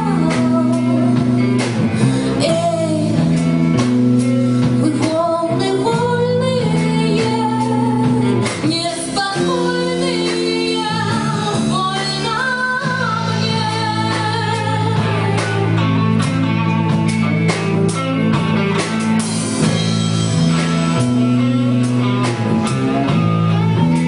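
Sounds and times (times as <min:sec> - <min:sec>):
woman singing: 0:00.0 - 0:16.7
guitar: 0:00.0 - 0:24.0
steady drum beat: 0:00.0 - 0:24.0.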